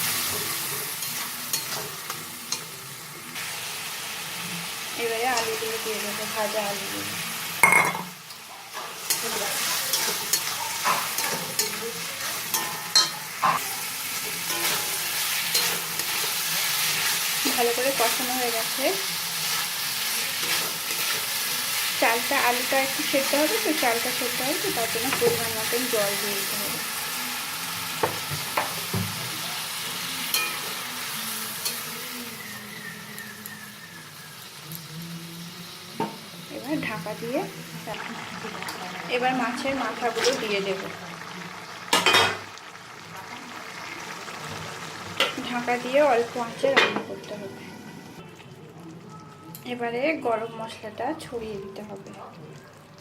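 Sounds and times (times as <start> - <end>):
spice paste sizzling: 0.0 - 48.2
spoon stirring and scraping pan: 0.1 - 2.8, 7.7 - 26.5
spoon knocking against pan: 28.0 - 29.2.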